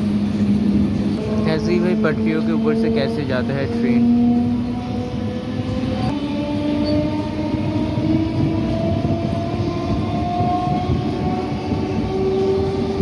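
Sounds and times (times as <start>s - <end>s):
train motor whine: 0.0s - 13.0s
train wheels rumbling on track: 0.0s - 13.0s.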